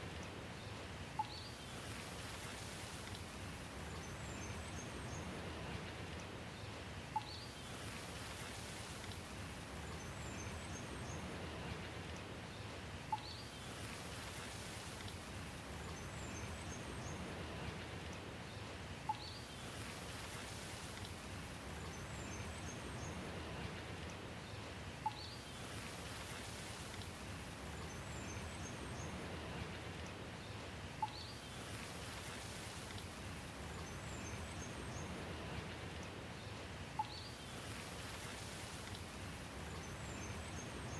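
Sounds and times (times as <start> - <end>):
steady rain falling: 0.0 - 40.9
faint high bird chirps: 19.1 - 19.6, 37.0 - 37.4.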